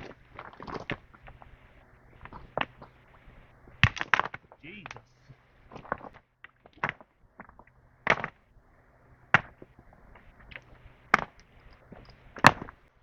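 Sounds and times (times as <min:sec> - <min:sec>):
small clicks: 0:09.3 - 0:12.9.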